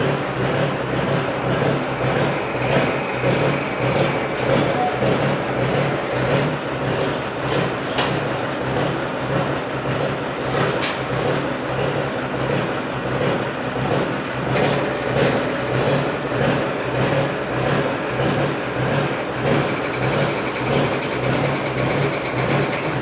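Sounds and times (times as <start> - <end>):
heavy vehicle engine running: 0.0 - 23.0.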